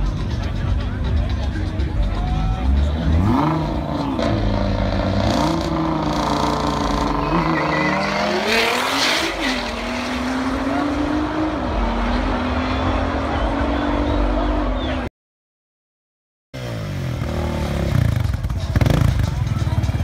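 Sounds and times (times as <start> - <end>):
crowd chatter: 0.0 - 15.1, 16.7 - 20.0
car engine revving: 2.6 - 15.0.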